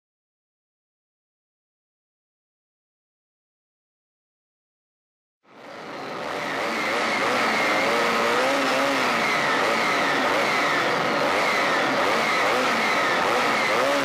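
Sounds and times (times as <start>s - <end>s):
motorcycle engine revving: 5.5s - 14.0s.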